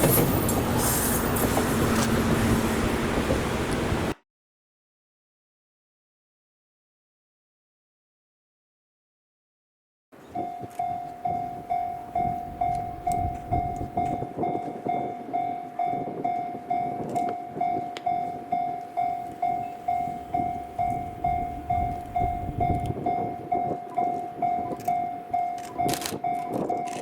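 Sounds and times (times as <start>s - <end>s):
train rumbling past: 0.0s - 4.2s, 10.6s - 26.3s
level crossing bell ringing: 10.4s - 26.6s.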